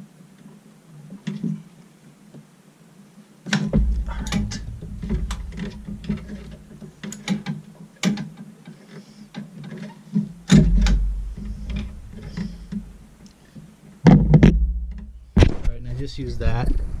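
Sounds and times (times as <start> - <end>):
loud thump: 3.6 - 6.8, 10.5 - 13.1, 14.1 - 15.8.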